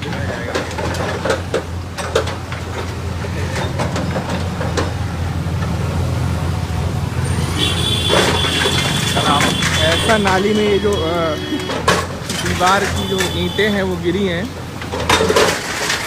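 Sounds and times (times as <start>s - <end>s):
knocks and clatter: 0.0s - 5.9s, 7.8s - 16.0s
bulldozer engine running: 0.0s - 16.0s.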